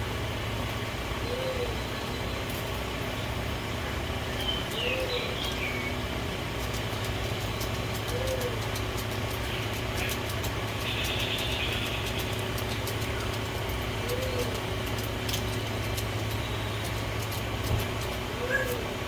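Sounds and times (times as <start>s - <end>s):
low machinery hum: 0.0s - 19.0s
birds chirping: 1.1s - 19.0s
soft low cooing calls: 1.2s - 2.4s, 4.8s - 5.4s, 8.0s - 8.7s, 14.0s - 14.7s, 18.4s - 19.0s.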